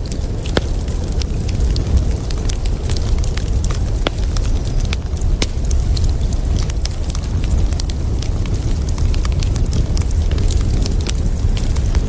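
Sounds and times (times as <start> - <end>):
campfire crackling and popping: 0.0 - 12.0
low fire rumble: 0.0 - 12.0.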